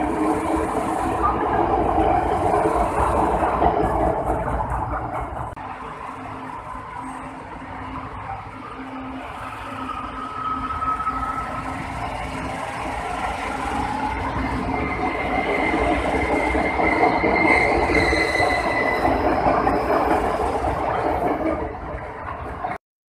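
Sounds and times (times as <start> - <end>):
train running into station: 0.0 - 22.8
high wheel squeals: 8.2 - 20.1.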